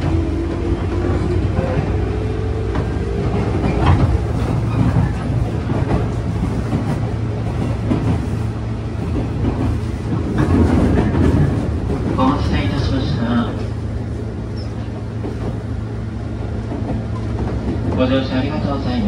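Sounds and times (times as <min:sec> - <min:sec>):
train motors rumbling: 0:00.0 - 0:19.0
wheels clacking over rail joints: 0:00.0 - 0:19.0.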